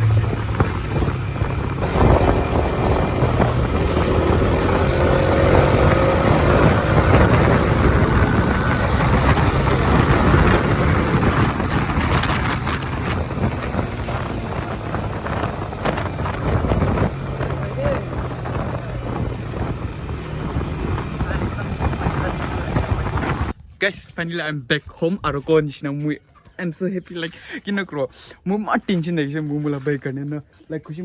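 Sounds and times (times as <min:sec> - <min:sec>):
motorcycle engine: 0:00.0 - 0:23.5
road and wind noise: 0:00.0 - 0:23.7.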